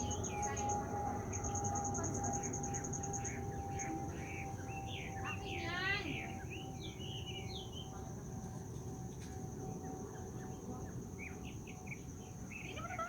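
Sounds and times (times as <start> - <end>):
birds chirping: 0.0 - 7.9
high-pitched insect drone: 0.0 - 12.7.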